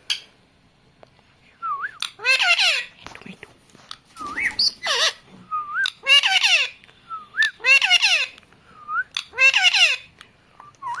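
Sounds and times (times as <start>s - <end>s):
parrot squawking: 2.0s - 2.9s, 4.3s - 5.2s, 5.8s - 6.8s, 7.5s - 8.4s, 9.2s - 10.1s.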